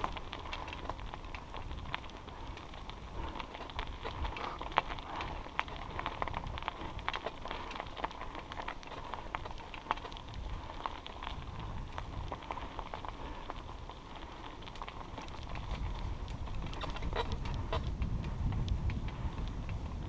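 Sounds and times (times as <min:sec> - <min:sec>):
wind on microphone: 0:00.0 - 0:13.0, 0:14.9 - 0:20.0
bicycle tyres crunching on trail: 0:00.0 - 0:20.0.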